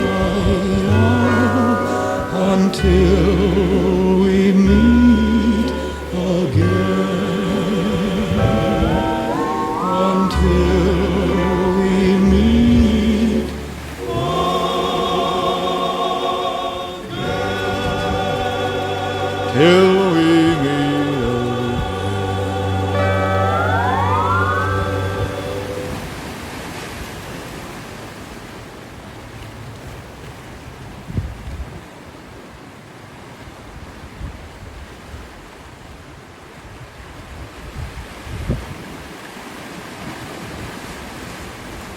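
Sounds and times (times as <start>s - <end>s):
choir singing held chords: 0.0s - 26.4s
solo voice swooping: 7.5s - 15.0s
wind gusts buffeting microphone: 30.9s - 31.9s, 36.7s - 39.2s.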